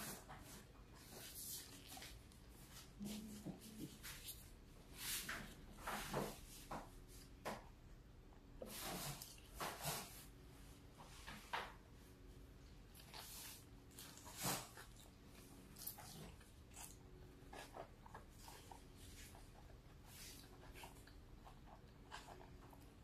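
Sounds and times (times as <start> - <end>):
soft squishing and rustling: 0.0 - 8.0, 8.6 - 23.0
chewing and wet mouth sounds: 12.7 - 23.0.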